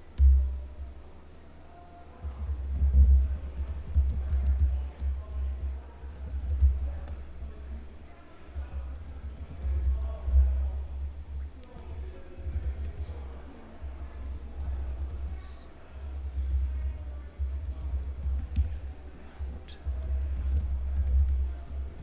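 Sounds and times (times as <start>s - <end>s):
faint background music: 0.0s - 22.0s
computer keyboard typing: 2.3s - 7.2s, 8.8s - 10.5s, 11.6s - 13.4s, 14.2s - 22.0s.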